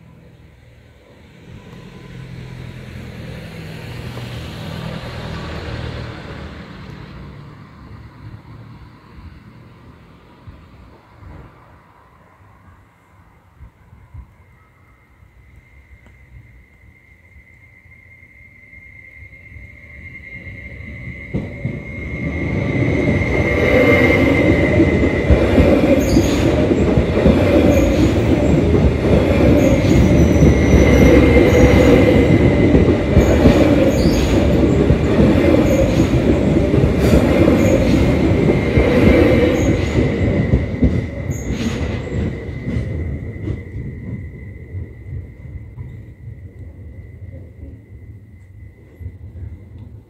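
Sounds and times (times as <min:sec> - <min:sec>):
train rumbling past: 0:00.0 - 0:50.0
crossing warning signal tone: 0:01.4 - 0:03.3, 0:14.1 - 0:50.0
wheels clacking over rail joints: 0:23.2 - 0:46.2.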